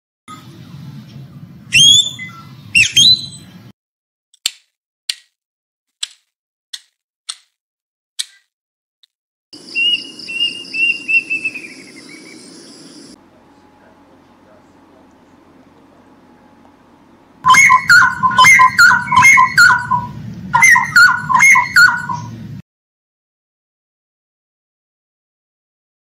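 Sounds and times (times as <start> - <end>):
falling bird notes: 9.6 - 13.6, 16.5 - 22.4
peacock calling: 9.6 - 16.2, 16.9 - 22.4
steady high hiss: 9.6 - 17.4.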